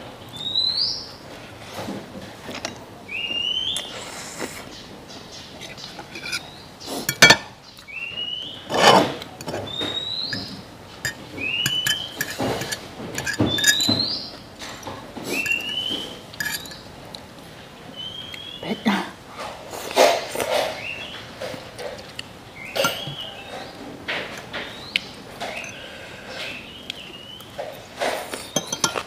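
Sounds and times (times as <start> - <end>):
cutlery clinking on dishes: 5.7 - 6.4, 7.0 - 7.5, 8.7 - 16.9, 22.8 - 24.7, 25.4 - 25.9, 28.0 - 29.0.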